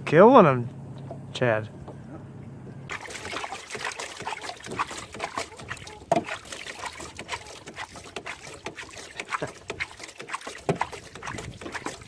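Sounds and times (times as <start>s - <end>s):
water splashing: 2.9s - 12.0s.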